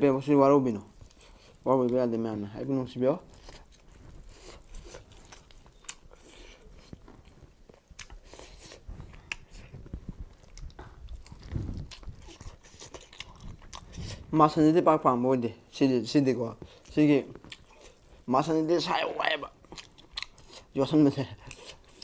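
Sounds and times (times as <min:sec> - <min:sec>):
wet chewing and smacking: 0:00.9 - 0:02.0, 0:03.2 - 0:14.4, 0:16.6 - 0:18.3, 0:18.9 - 0:22.0.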